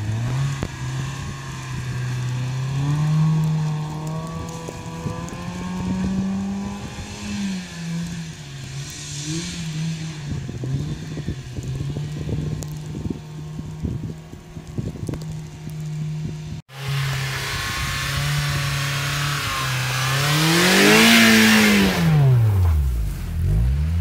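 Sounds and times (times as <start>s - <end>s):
thumps and crackles: 9.7s - 16.6s
car engine revving high: 16.7s - 24.0s.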